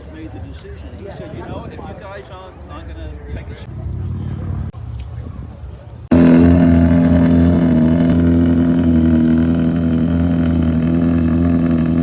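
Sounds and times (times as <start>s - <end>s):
car engine humming steadily: 6.1s - 12.0s.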